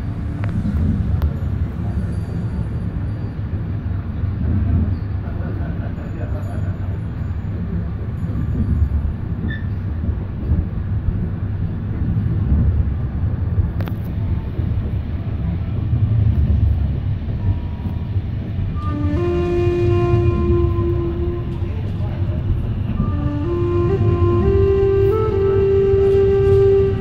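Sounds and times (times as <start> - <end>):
train rumble inside carriage: 0.0 - 27.0
held musical tone: 18.8 - 27.0.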